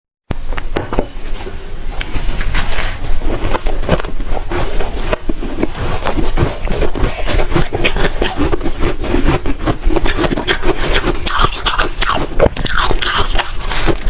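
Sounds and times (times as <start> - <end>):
chewing crunchy shaved ice: 2.9 - 14.0.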